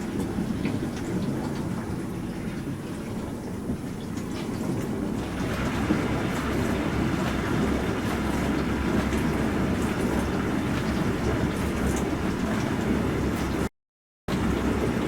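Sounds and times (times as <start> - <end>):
dishwasher hum: 3.7 - 13.7.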